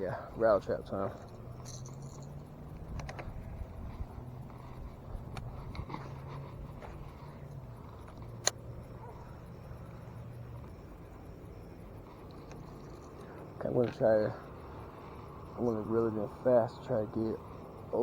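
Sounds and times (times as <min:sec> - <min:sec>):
distant traffic hum: 0:00.0 - 0:18.0
light clicks: 0:01.4 - 0:09.6.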